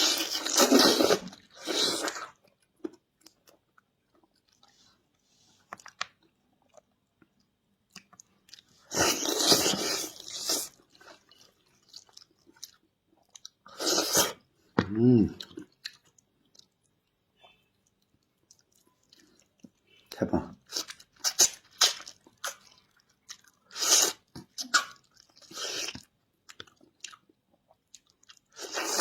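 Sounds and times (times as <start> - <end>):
soft chewing clicks: 2.3 - 8.7, 15.4 - 20.0.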